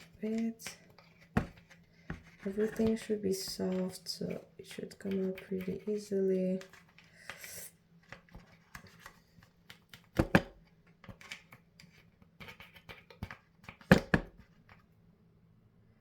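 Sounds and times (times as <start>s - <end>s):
plastic parts clicking and scraping: 0.0s - 14.8s.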